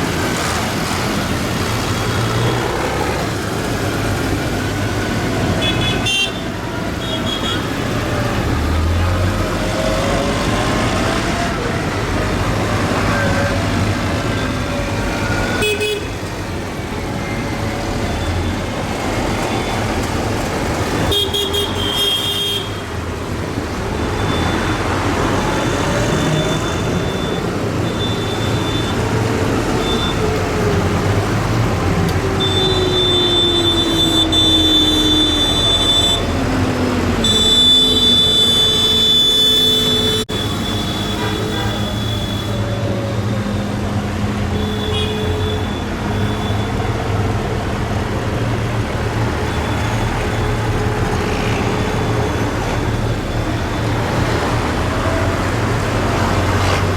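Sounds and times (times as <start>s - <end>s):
tractor engines passing: 0.0s - 56.9s
horns tooting: 32.1s - 42.8s.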